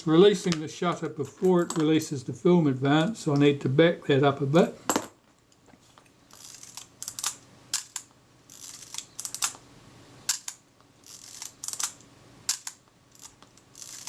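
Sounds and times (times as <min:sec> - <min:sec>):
rasping film advance strokes: 0:13.1 - 0:14.0.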